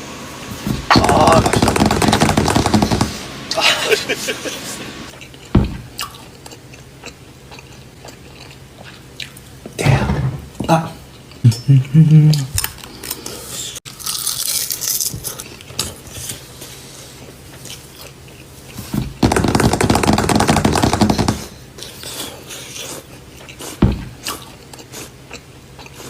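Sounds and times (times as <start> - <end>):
loud crackling: 0.9 - 3.2
dull thump: 5.5 - 5.9, 23.8 - 24.2.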